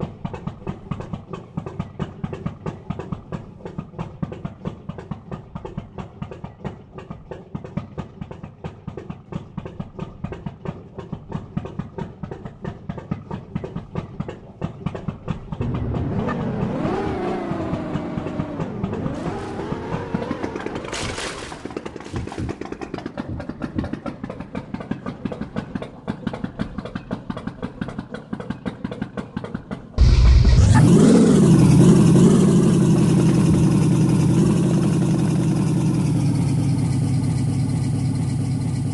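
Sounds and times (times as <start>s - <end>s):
vehicle engine revving: 15.3s - 24.0s, 30.0s - 38.9s.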